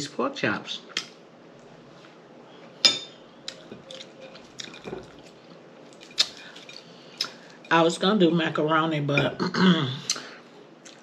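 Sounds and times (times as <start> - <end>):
chewing and lip smacking: 3.4 - 7.4.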